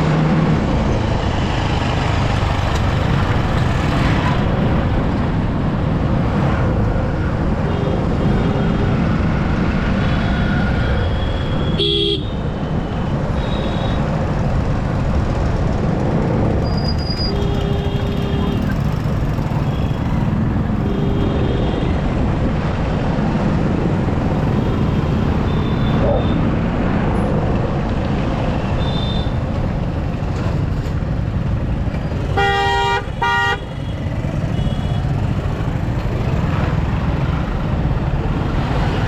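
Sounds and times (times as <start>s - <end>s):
road and wind rush: 0.0s - 39.0s
vehicle horn honking: 32.4s - 33.8s.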